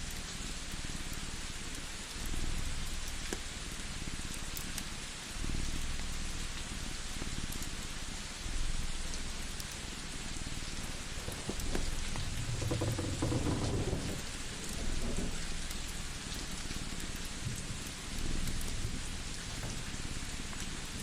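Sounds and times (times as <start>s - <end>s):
rain hissing: 0.0s - 21.0s
fire crackling: 0.1s - 21.0s
thunder rumbling: 10.6s - 17.0s.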